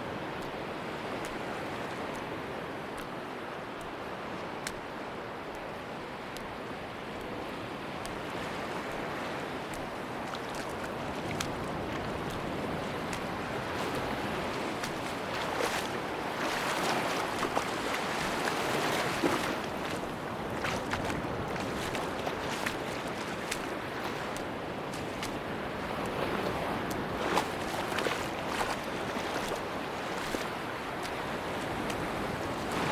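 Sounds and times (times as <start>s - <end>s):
waves washing on beach: 0.0s - 32.9s
faint ticks in the wash: 0.1s - 32.9s.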